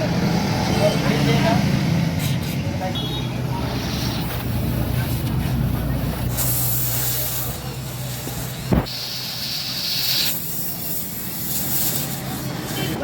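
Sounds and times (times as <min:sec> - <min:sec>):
gas hissing: 0:03.6 - 0:13.0.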